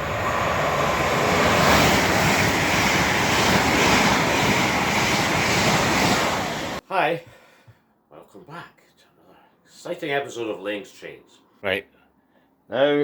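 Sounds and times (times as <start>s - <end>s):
model train rumbling on track: 0.0s - 6.8s.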